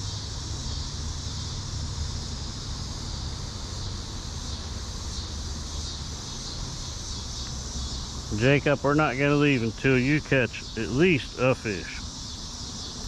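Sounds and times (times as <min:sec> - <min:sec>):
high hiss: 0:08.3 - 0:12.1.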